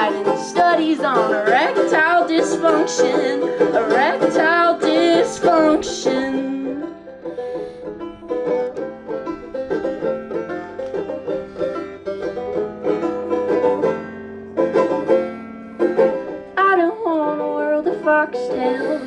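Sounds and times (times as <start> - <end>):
person singing: 0.0 - 7.0, 16.6 - 19.0
banjo picking: 0.0 - 19.0.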